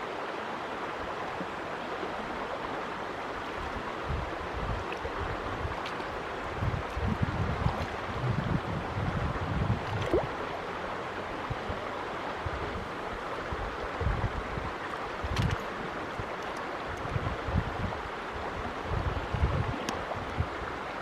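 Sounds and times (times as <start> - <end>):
running river water: 0.0 - 21.0
wind buffeting microphone: 3.6 - 11.8, 12.4 - 20.7.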